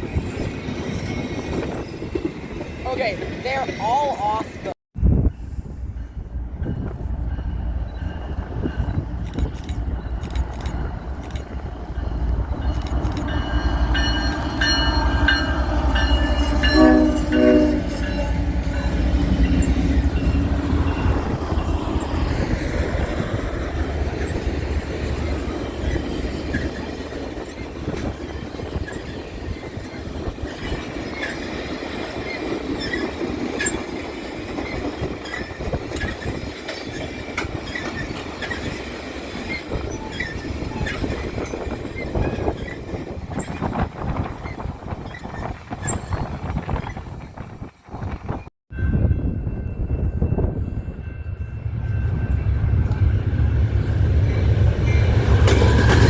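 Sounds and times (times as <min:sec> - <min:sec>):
locomotive rumble: 0:05.0 - 0:56.0
train wheels clicking over rail joints: 0:08.2 - 0:16.7, 0:18.5 - 0:48.0, 0:55.1 - 0:56.0
train horn blasts: 0:13.8 - 0:18.8.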